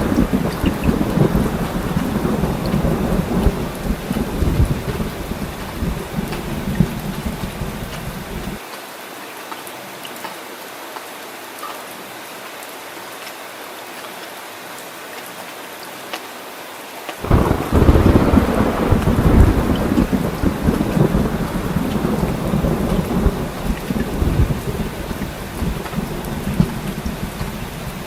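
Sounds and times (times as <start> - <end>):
drips: 0.0 - 8.6, 17.3 - 28.0
thunder rumbling: 0.0 - 8.6, 17.2 - 28.0
heavy rain: 0.0 - 28.0.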